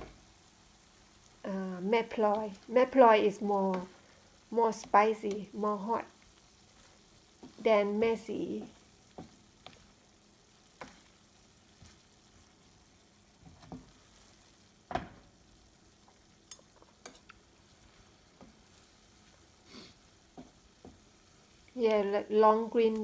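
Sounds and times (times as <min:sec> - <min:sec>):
faint sizzle in a pan: 0:00.0 - 0:23.0
spatula knocking and scraping pan: 0:07.4 - 0:10.0, 0:10.7 - 0:12.1, 0:13.4 - 0:14.1, 0:20.3 - 0:21.1.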